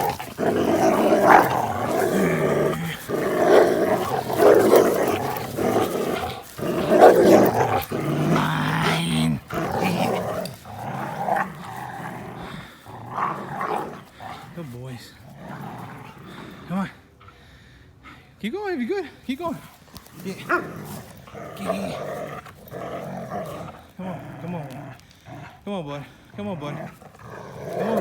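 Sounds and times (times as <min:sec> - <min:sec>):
dogs growling: 0:00.0 - 0:17.4, 0:19.6 - 0:28.0.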